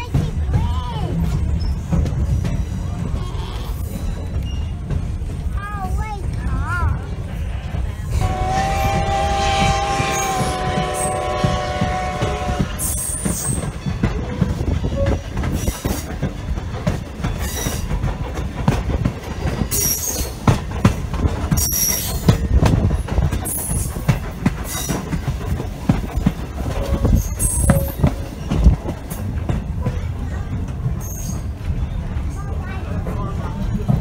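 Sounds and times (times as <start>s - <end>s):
train coach rumbling on track: 0.0s - 34.0s
high wheel squeals: 2.5s - 4.8s.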